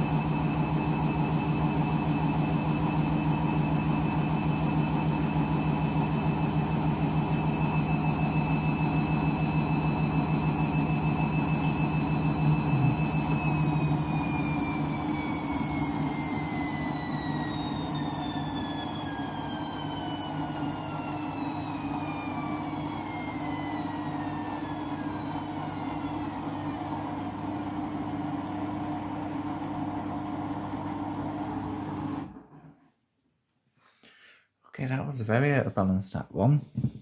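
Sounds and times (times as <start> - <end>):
washing machine motor whine: 0.0 - 32.8
steady hum: 5.0 - 29.7.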